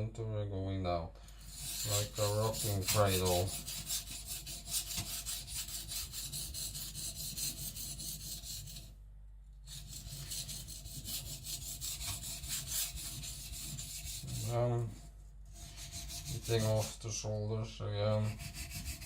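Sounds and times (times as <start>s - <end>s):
blade scraping on whetstone: 1.4s - 8.9s, 9.7s - 14.6s, 15.5s - 17.0s, 18.2s - 19.0s.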